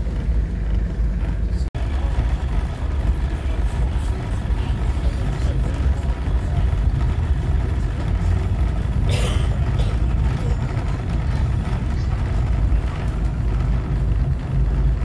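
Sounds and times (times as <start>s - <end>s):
train carriage rumble: 0.0s - 15.0s.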